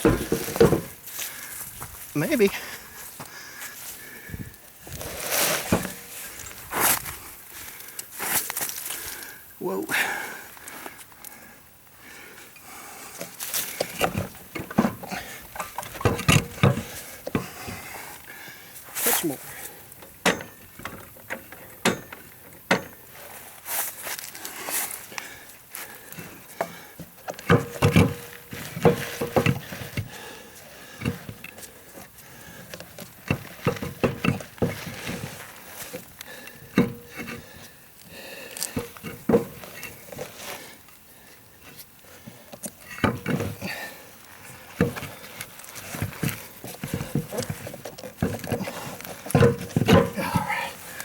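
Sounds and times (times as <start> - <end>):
knocks and clatter on wagon wheel: 0.0 - 2.6, 4.4 - 7.0, 13.3 - 18.1, 19.5 - 23.4, 25.8 - 37.7, 38.6 - 40.4, 42.3 - 51.0.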